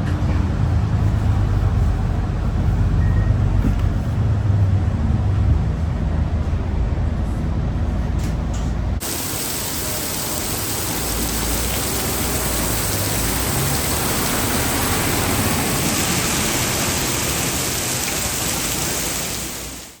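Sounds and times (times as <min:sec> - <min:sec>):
bus engine rumble: 0:00.0 - 0:19.8
steady hiss: 0:09.0 - 0:20.0.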